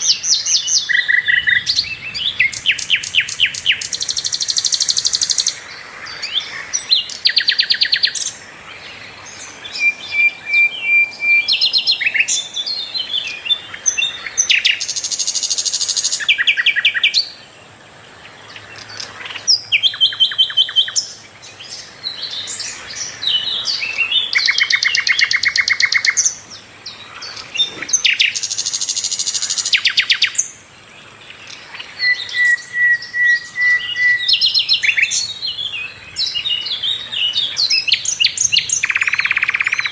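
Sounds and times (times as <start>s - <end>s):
flycatcher singing trills: 31.4s - 39.9s
high bird whistle: 32.0s - 35.0s.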